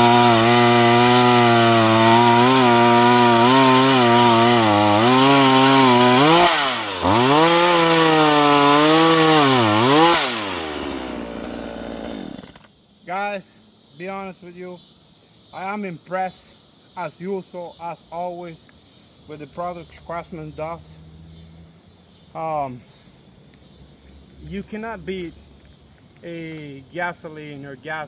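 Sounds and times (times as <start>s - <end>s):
chainsaw cutting log: 0.0s - 12.7s.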